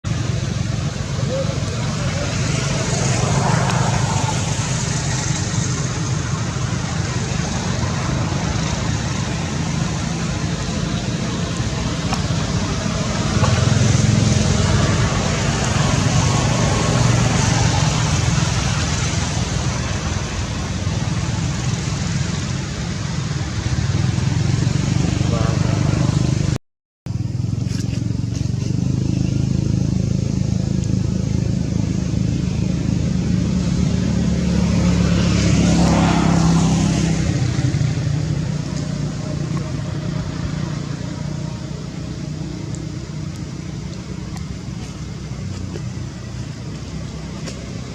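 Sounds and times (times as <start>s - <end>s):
vehicle engine running: 0.0s - 47.9s
vehicle passing close by: 0.0s - 47.9s
low rumbling noise with hiss: 0.1s - 47.9s.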